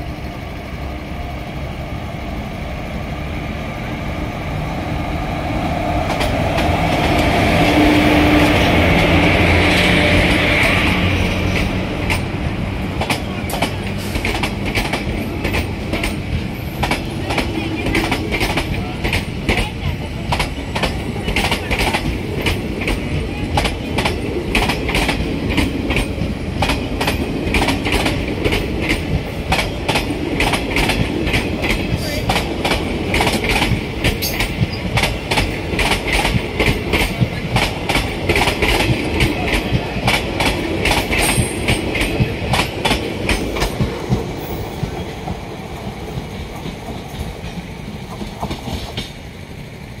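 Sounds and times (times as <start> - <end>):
train wheels clattering on rails: 5.5 - 49.4.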